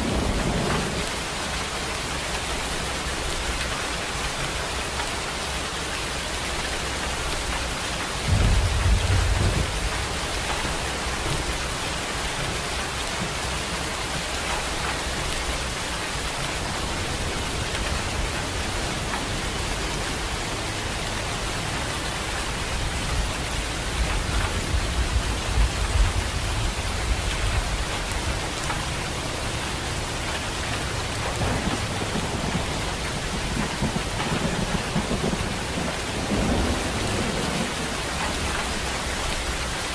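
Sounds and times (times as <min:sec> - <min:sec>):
thunder rolling: 0:00.0 - 0:01.2, 0:08.2 - 0:12.7, 0:31.1 - 0:39.0
rain falling steadily: 0:00.0 - 0:39.9.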